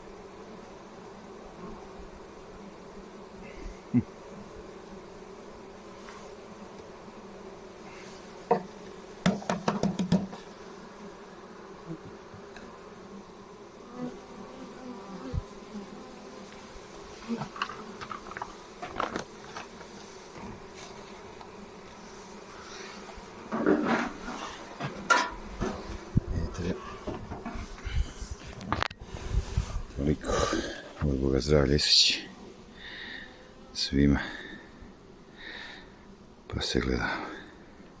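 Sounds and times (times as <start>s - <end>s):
honeybees buzzing: 0.0s - 38.0s
hive parts knocking: 8.5s - 10.5s.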